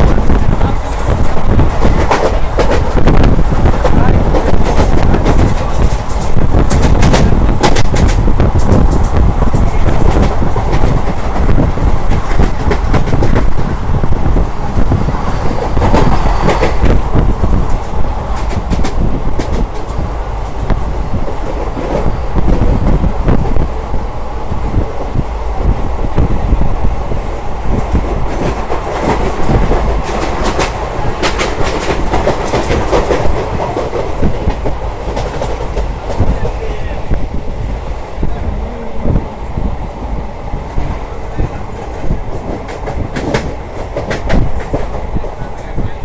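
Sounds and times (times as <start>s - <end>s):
train rumbling: 0.0s - 46.0s.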